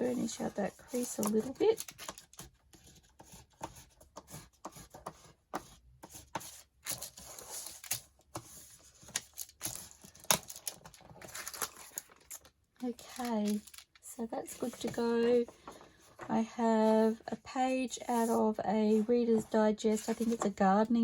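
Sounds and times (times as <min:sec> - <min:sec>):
paper rubbing strokes: 0:14.6 - 0:20.5.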